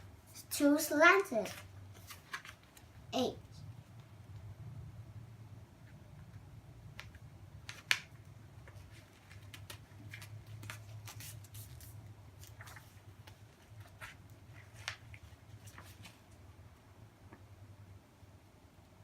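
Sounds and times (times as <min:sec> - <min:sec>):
paper being folded and creased: 0:01.4 - 0:03.0, 0:07.6 - 0:16.4.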